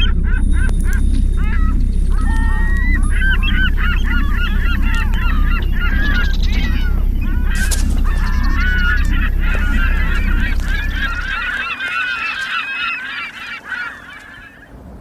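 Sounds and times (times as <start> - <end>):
low rumble: 0.0 - 11.8
geese honking: 0.0 - 15.0.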